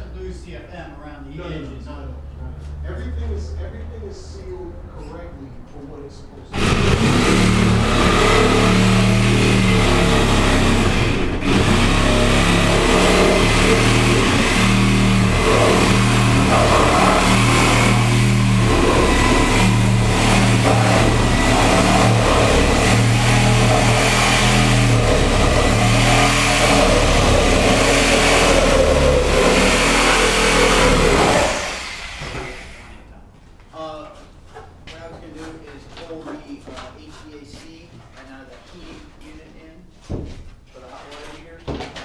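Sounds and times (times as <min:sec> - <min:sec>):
loud engine humming: 0:06.5 - 0:33.0.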